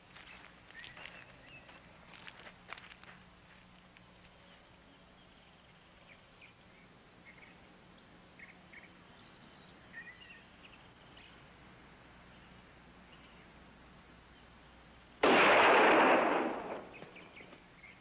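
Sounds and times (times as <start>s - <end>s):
steady low hum: 0.0s - 18.0s
faint bird chirps: 0.7s - 1.8s, 4.4s - 11.5s, 12.3s - 13.6s.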